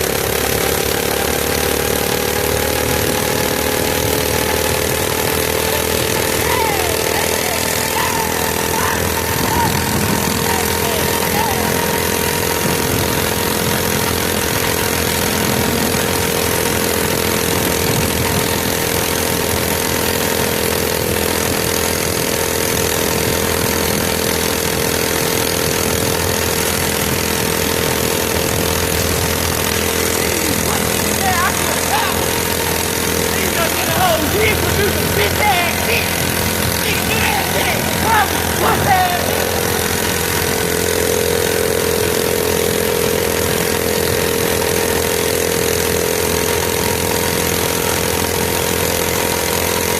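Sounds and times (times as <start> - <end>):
small engine running: 0.0 - 49.9.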